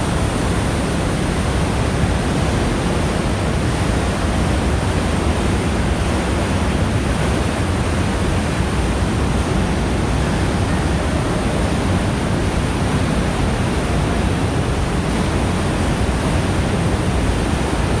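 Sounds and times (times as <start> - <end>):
waterfall rushing: 5.8 - 18.0.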